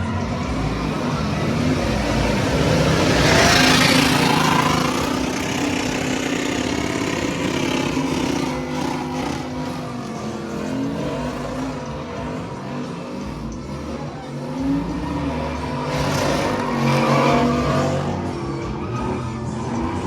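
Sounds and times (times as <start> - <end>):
road noise: 0.0 - 20.0
vehicle engines running: 0.0 - 20.0.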